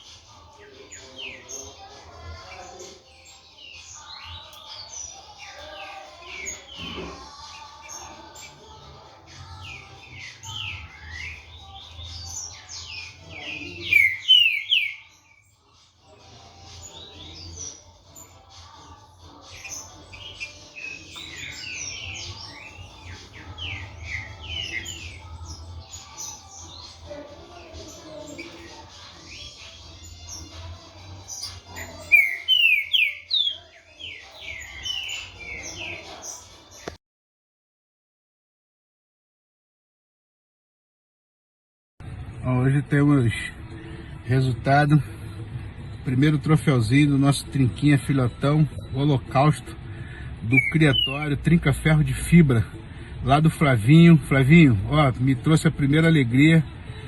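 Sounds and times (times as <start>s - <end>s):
bird singing whistled notes: 9.7s - 15.5s, 31.2s - 37.0s, 50.5s - 51.3s
bird singing slurred whistles: 13.9s - 15.0s, 32.2s - 33.6s.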